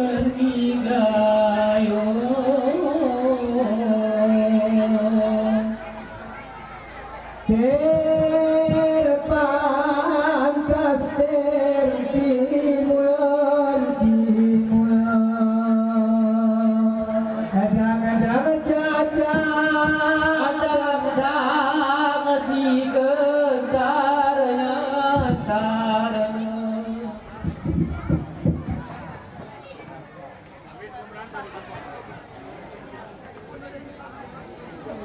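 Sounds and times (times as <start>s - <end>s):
man singing high-pitched: 0.0s - 5.9s, 7.5s - 27.2s.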